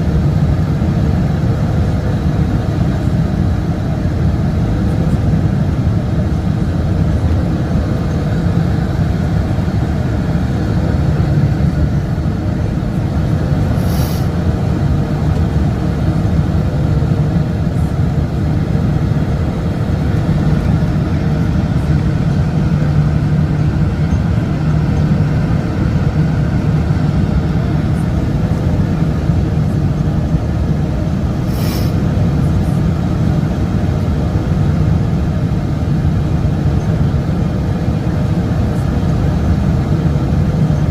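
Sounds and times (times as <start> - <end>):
airplane cabin low rumble: 0.0 - 40.9
brief high hisses: 13.8 - 14.3, 31.4 - 32.0.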